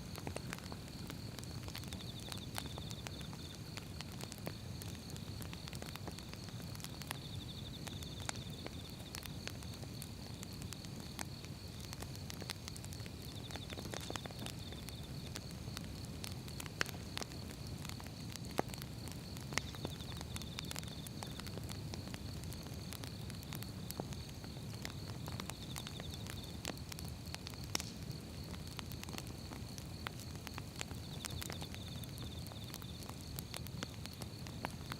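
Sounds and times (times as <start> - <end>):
firewood crackling and popping: 0.0 - 34.9
low rumble of flames: 0.0 - 34.9.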